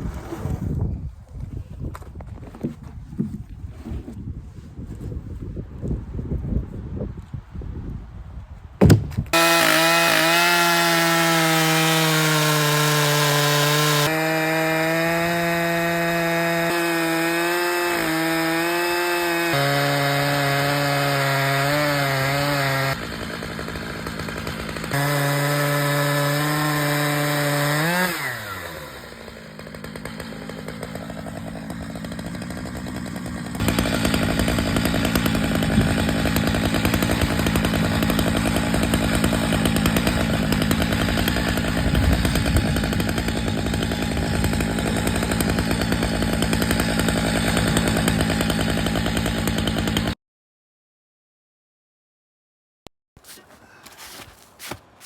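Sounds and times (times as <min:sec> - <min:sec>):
chainsaw cutting log: 0:08.8 - 0:50.2, 0:53.2 - 0:55.0.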